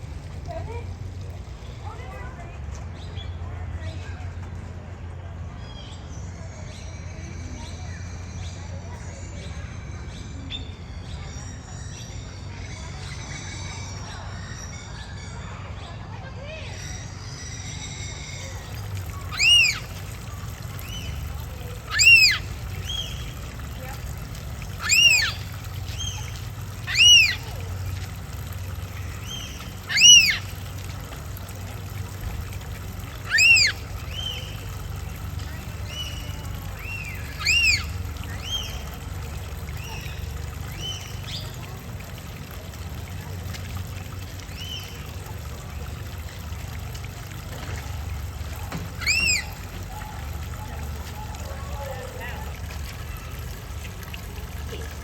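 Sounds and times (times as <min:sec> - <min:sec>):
small birds chirping: 0:05.6 - 0:42.2, 0:43.2 - 0:46.5, 0:47.6 - 0:54.4
steady low hum: 0:14.0 - 0:55.0
bird whistle call: 0:19.1 - 0:20.0, 0:21.8 - 0:23.3, 0:24.8 - 0:26.3, 0:26.9 - 0:27.6, 0:29.2 - 0:30.5, 0:33.2 - 0:34.6, 0:35.8 - 0:38.8, 0:49.0 - 0:49.6.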